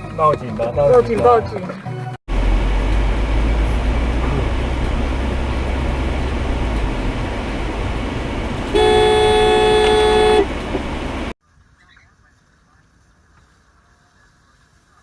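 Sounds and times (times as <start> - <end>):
car road and engine noise: 2.3 - 11.4
car horn blaring: 4.4 - 11.3.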